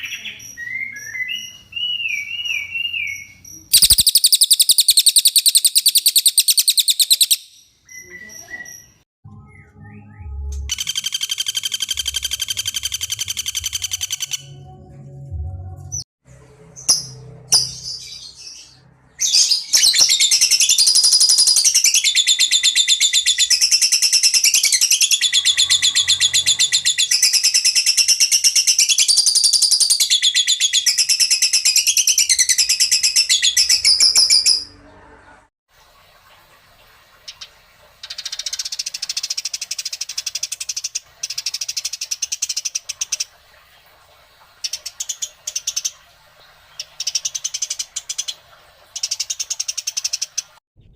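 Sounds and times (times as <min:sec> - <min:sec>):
songbird trilling: 0:00.0 - 0:08.9, 0:10.7 - 0:14.5.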